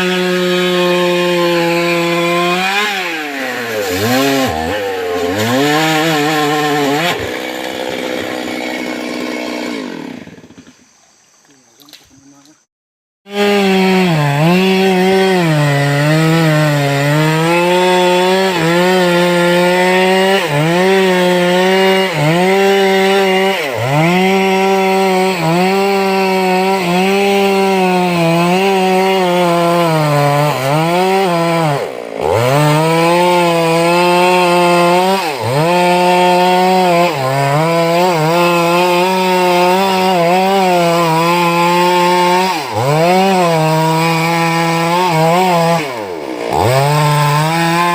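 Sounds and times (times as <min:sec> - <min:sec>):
chainsaw cutting wood: 0:00.0 - 0:10.9, 0:13.3 - 0:47.9.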